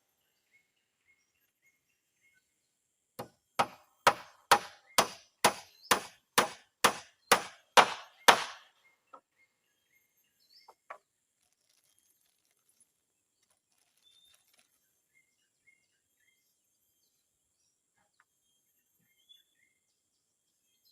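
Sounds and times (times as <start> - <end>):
hammer striking nails into wood: 3.2 - 8.7.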